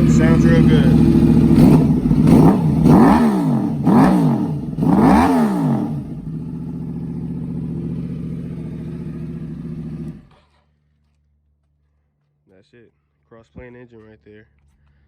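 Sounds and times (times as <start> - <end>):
motorcycle engine idling: 0.0 - 10.8
motorcycle engine revving: 0.0 - 10.8.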